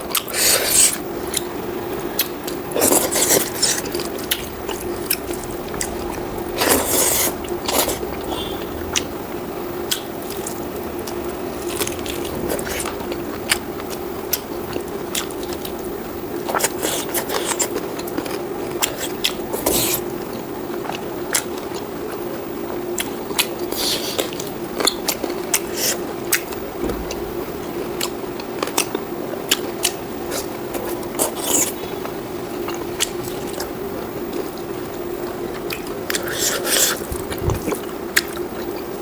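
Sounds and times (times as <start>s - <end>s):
person chewing food: 0.0s - 20.1s, 27.9s - 39.0s
low hum: 1.1s - 16.3s.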